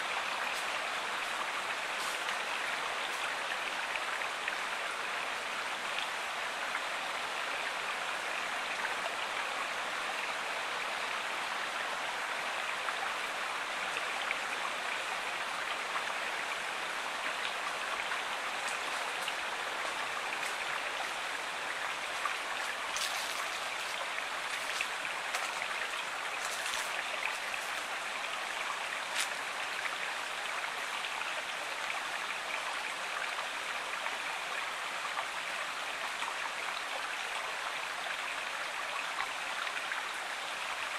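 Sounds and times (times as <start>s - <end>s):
flowing river rushing: 0.0s - 38.6s
water splashing ticks: 22.7s - 25.8s.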